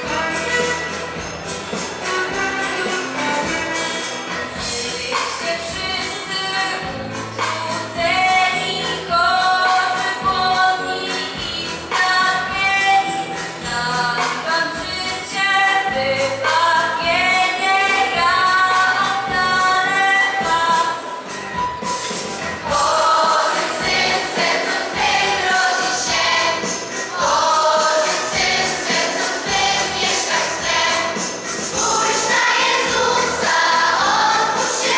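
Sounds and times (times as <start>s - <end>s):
choir singing a carol: 22.6s - 34.9s.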